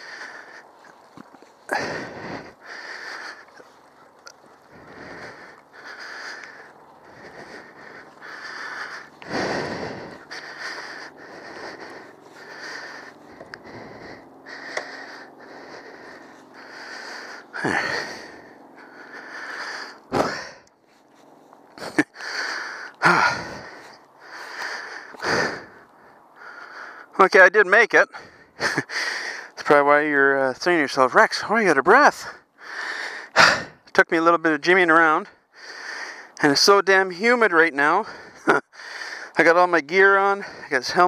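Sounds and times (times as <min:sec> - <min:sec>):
man panting hard: 0:00.0 - 0:41.0.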